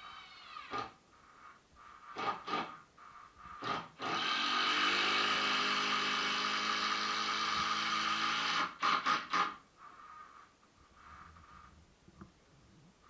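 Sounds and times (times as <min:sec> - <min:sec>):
handheld power tool running: 0:03.6 - 0:09.5.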